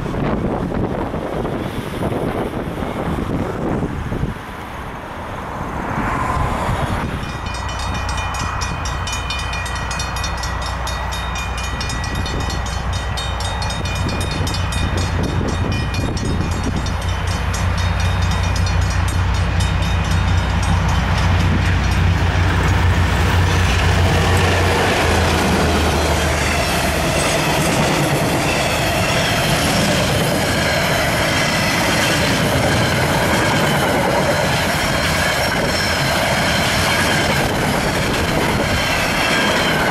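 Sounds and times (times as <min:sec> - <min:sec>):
diesel locomotive engine drone: 0:00.0 - 0:39.9
high ringing: 0:07.1 - 0:33.6.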